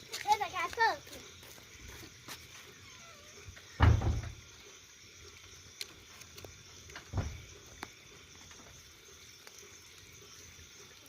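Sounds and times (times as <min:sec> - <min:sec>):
bonfire crackling: 0:00.0 - 0:11.0
deep thump: 0:03.8 - 0:04.4, 0:07.1 - 0:07.5.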